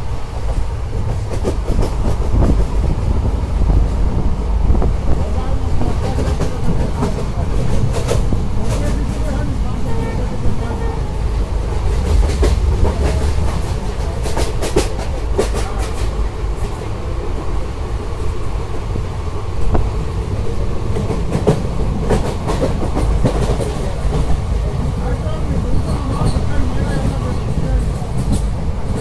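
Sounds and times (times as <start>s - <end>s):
train heavy rumble: 0.0s - 29.0s
wheels clickety-clack: 0.4s - 3.0s, 11.8s - 16.9s, 20.9s - 24.8s, 25.5s - 29.0s.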